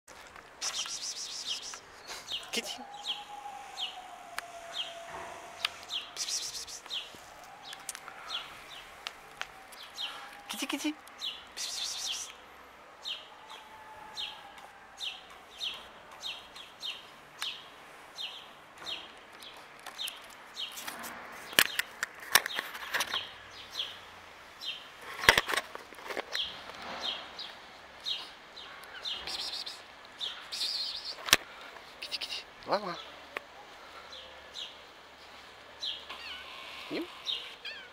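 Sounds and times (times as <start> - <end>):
songbird chirping: 0.2 - 37.9.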